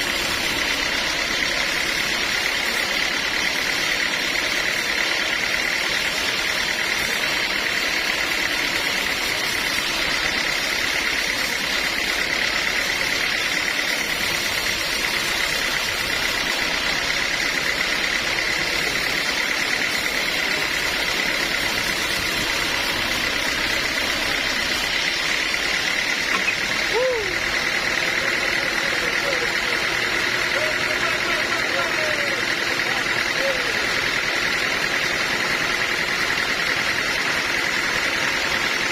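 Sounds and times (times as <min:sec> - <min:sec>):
high mechanical whine: 0:00.0 - 0:38.9
sawmill machinery running: 0:00.0 - 0:38.9.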